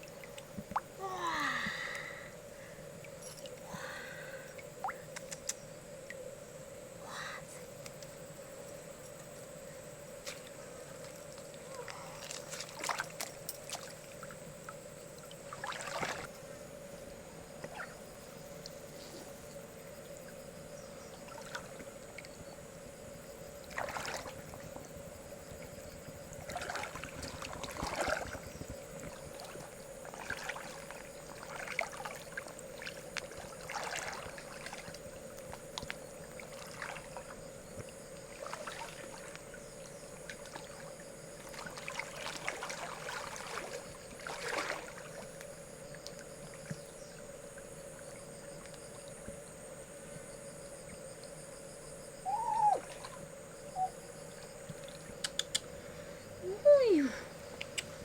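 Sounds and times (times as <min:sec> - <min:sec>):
river water splashing: 0:10.2 - 0:16.6, 0:21.0 - 0:22.3, 0:23.6 - 0:49.2.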